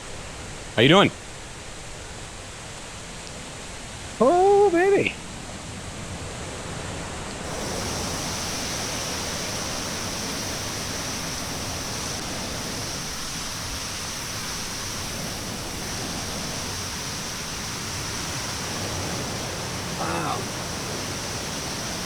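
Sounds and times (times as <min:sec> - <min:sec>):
waterfall rushing: 0:07.4 - 0:22.0.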